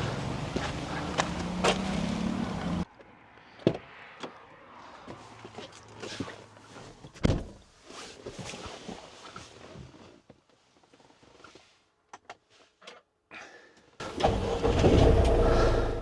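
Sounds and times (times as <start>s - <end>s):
vehicle engine running: 0.0s - 2.8s, 14.0s - 16.0s.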